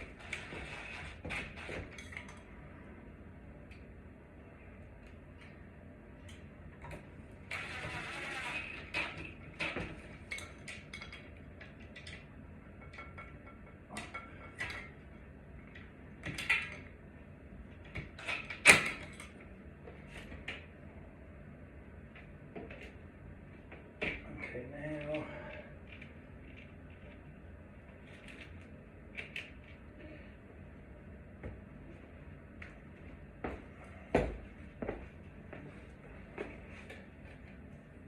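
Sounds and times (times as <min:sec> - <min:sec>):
knocks and clicks of tools: 0:08.8 - 0:15.0.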